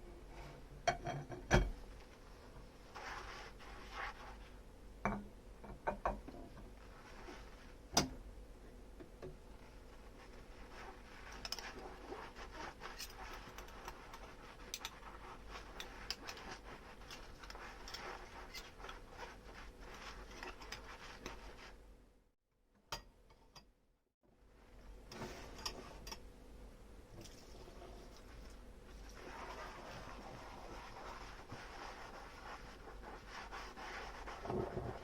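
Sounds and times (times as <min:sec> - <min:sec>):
soft scrubbing: 0:01.9 - 0:04.7, 0:06.6 - 0:07.9, 0:09.5 - 0:21.9, 0:27.2 - 0:35.0.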